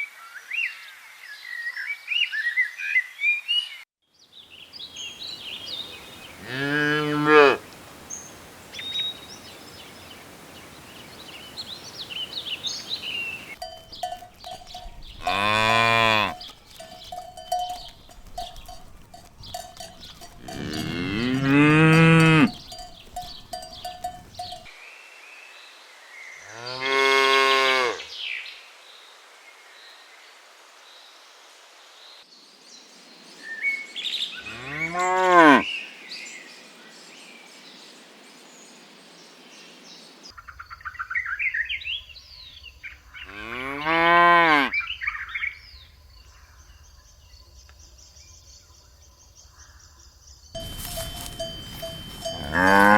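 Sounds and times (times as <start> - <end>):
cows mooing: 6.4 - 7.6, 13.6 - 24.7, 34.5 - 35.6, 43.3 - 44.7, 50.6 - 52.9.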